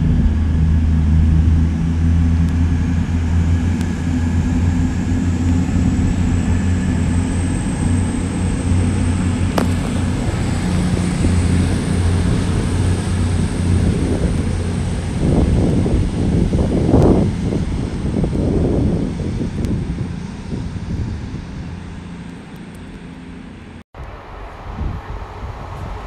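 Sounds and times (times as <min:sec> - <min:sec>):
wind buffeting microphone: 0:00.0 - 0:23.1, 0:24.0 - 0:26.0
passenger train passing: 0:09.3 - 0:15.1.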